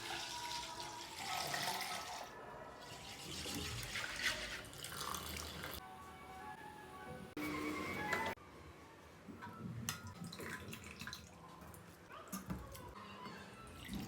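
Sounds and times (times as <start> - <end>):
liquid pouring and splashing: 0.0 - 5.8, 10.0 - 11.4.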